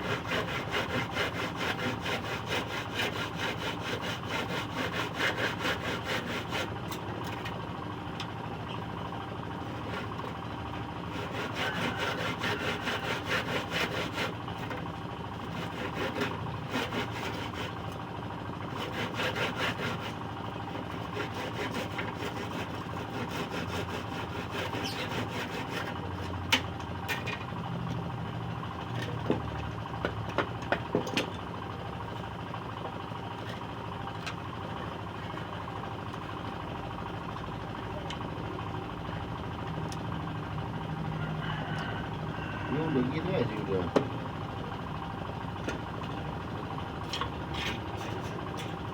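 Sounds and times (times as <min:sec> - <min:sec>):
saw cutting wood: 0:00.0 - 0:07.4, 0:09.6 - 0:10.4, 0:11.0 - 0:18.0, 0:18.7 - 0:26.4, 0:42.7 - 0:44.1.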